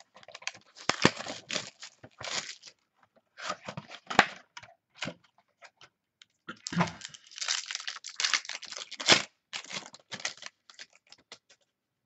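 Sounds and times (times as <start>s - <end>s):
packaging torn and crinkled: 0.1s - 2.8s, 6.6s - 11.6s.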